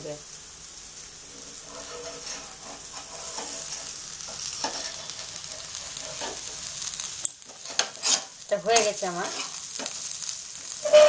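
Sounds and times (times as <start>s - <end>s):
pancake sizzling in oil: 0.0s - 11.0s
metal spatula scraping pan: 1.3s - 6.7s, 7.5s - 9.9s, 10.7s - 11.0s.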